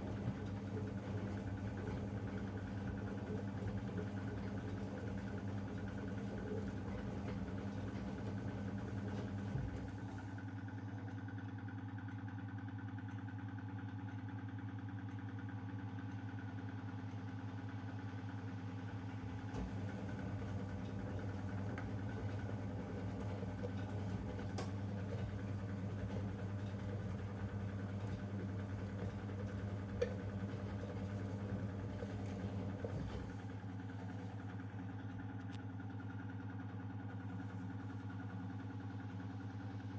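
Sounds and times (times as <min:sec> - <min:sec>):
washing machine humming: 0:00.0 - 0:10.6, 0:19.0 - 0:39.9.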